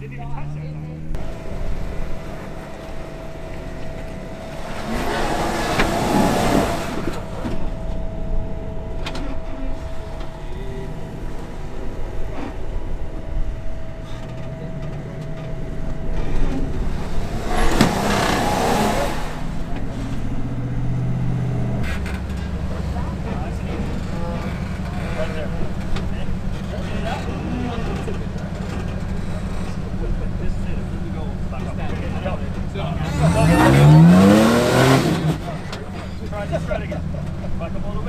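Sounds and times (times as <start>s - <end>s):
off-road engine surging: 0.0s - 38.0s
thin steady whine: 1.1s - 20.5s.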